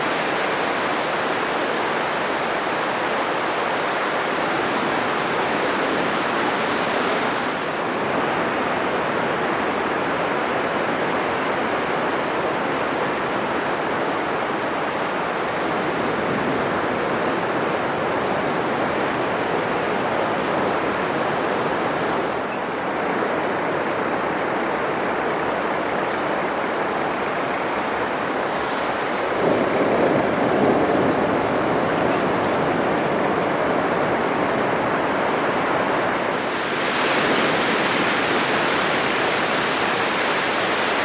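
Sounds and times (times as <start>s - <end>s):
surf breaking on beach: 14.6s - 41.0s.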